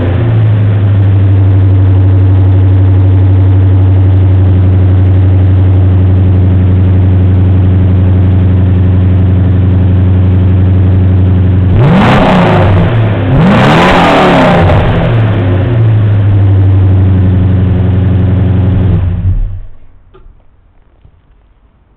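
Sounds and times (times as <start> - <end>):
car engine idling and revving: 0.0 - 21.9.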